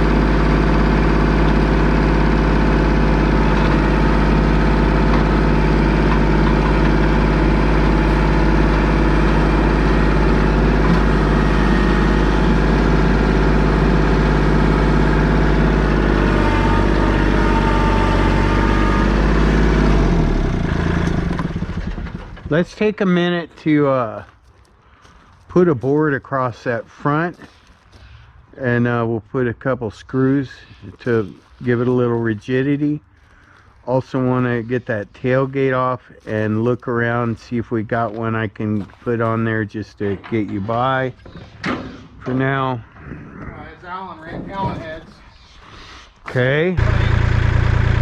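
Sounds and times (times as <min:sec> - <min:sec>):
vehicle engine idling: 0:00.0 - 0:22.8, 0:46.8 - 0:48.0.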